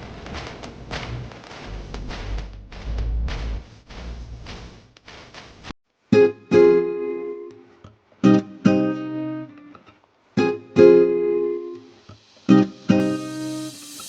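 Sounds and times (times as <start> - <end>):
plucked guitar-like chords: 6.1 - 7.6.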